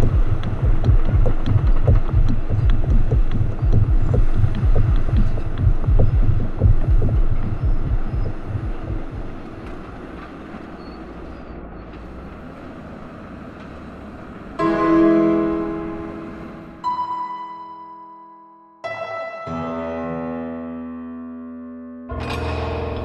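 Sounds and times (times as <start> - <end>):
deep pulsing thumps: 0.0 - 9.6
low steady hum: 0.0 - 10.0
piano chord ringing: 14.6 - 23.0.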